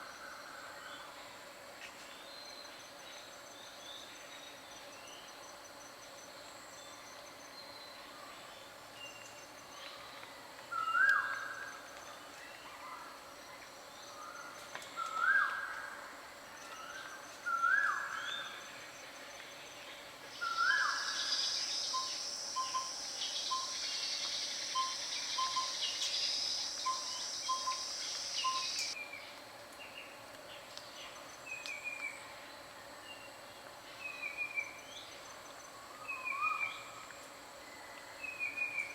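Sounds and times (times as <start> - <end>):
insect buzz: 16.5 - 29.0.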